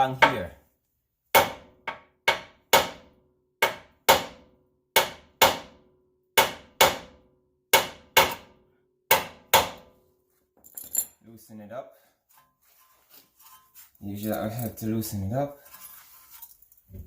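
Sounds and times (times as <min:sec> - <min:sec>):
hammer striking steel: 0:09.1 - 0:09.9.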